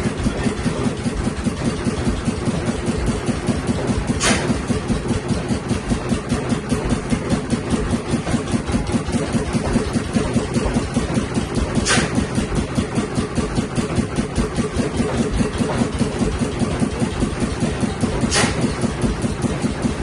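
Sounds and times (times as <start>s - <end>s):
stationary engine running: 0.0s - 20.0s
short hisses: 18.3s - 18.6s.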